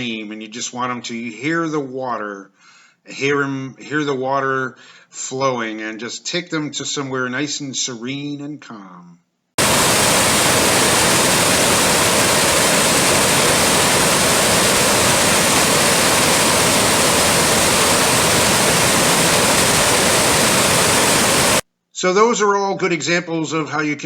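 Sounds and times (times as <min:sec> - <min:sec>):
stream water rushing: 0:09.6 - 0:21.6.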